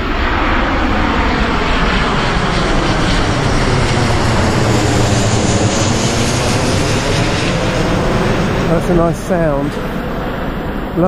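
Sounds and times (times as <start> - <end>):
high engine whine: 0.0 - 11.0
jet engine noise: 0.0 - 11.0.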